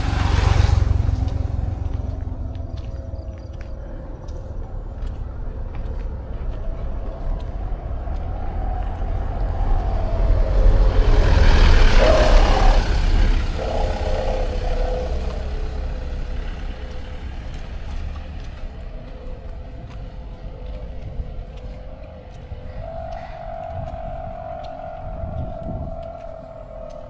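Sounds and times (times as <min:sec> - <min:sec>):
vehicle driving past: 0:00.0 - 0:04.3, 0:08.4 - 0:19.6
steady low rumble: 0:00.0 - 0:27.0.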